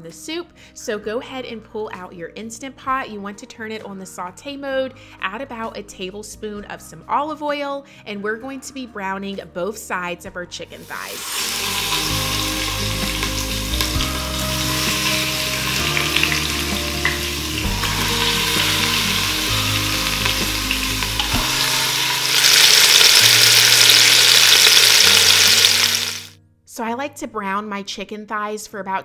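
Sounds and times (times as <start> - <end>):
chicken sizzling in oil: 10.9 - 26.3.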